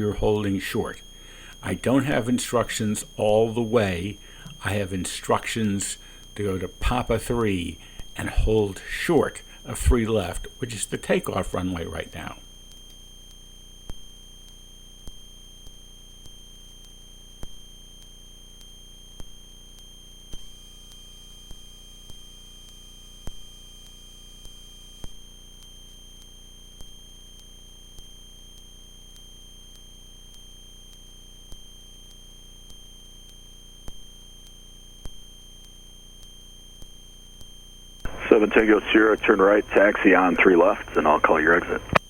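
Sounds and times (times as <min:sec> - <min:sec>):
faint clicks: 0:38.1 - 0:42.0.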